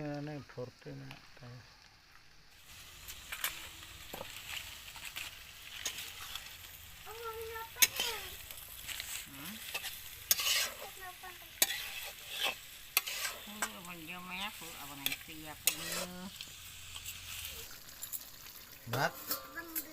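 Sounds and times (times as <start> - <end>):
curry sizzling in a pot: 0.0 - 19.9
spoon scraping and knocking pot: 9.7 - 10.9, 11.6 - 16.2.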